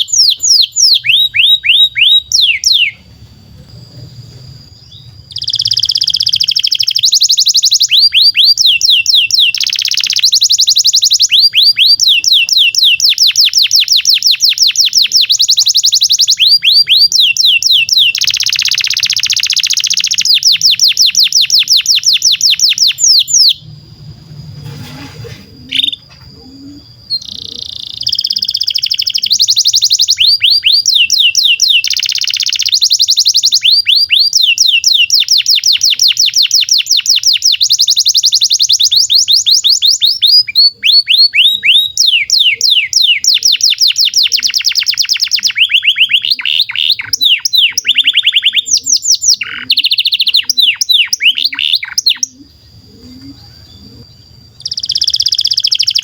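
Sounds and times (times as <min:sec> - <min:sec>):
canary singing trills: 0:00.0 - 0:56.0
thin steady whistle: 0:00.0 - 0:56.0.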